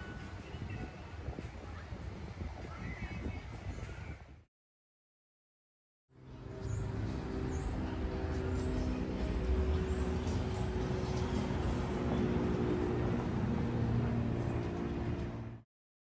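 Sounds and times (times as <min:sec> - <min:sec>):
cars driving past: 0:06.3 - 0:15.6
tyre and road noise: 0:06.6 - 0:15.6.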